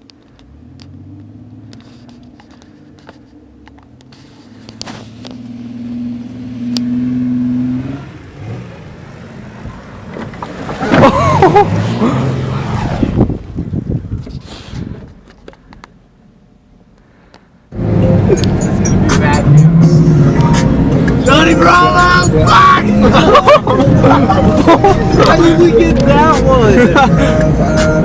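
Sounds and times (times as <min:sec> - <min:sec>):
van engine revving hard: 0:04.8 - 0:13.4, 0:17.7 - 0:28.0
tyre noise: 0:09.5 - 0:15.7.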